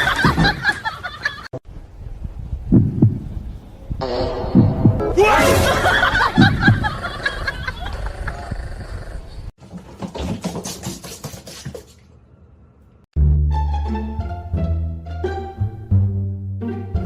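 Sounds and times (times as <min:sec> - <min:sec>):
low dull double thumps: 0:01.9 - 0:05.2.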